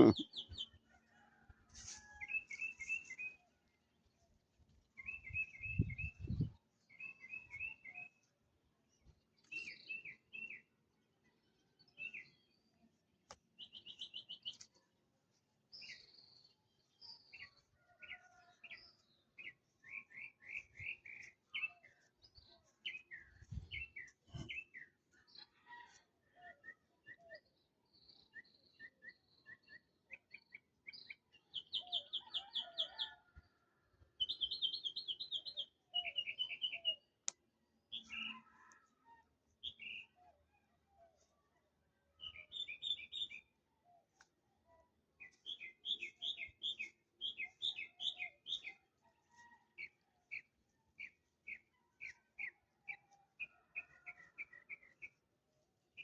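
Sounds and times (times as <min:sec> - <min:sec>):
birds chirping and trilling: 0:17.0 - 0:33.2, 0:34.2 - 0:37.2, 0:37.8 - 0:44.3, 0:44.9 - 0:55.2.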